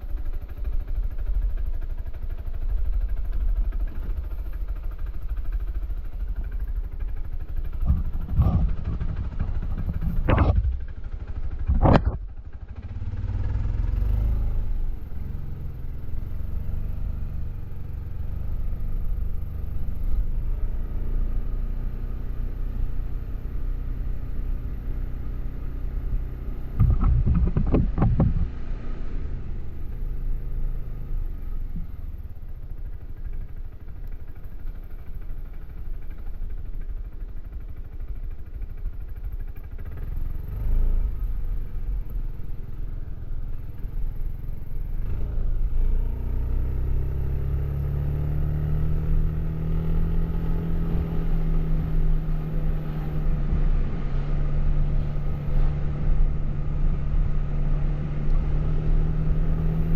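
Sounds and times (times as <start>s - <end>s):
scooter engine running: 0.0s - 58.0s
rough rattling rumble: 2.4s - 12.6s, 26.7s - 28.7s.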